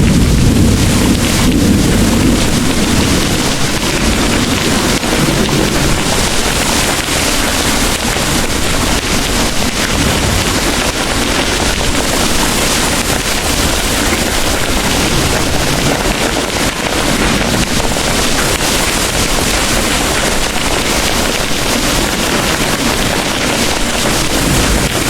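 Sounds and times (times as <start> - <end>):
deep low rumble: 0.0 - 6.6
heavy rain pouring: 0.0 - 25.0.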